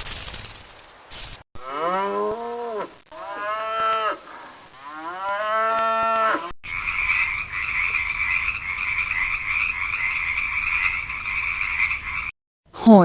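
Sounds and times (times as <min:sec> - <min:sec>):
long rising and falling animal calls: 0:01.8 - 0:12.3
high-pitched calling chorus: 0:06.6 - 0:12.3.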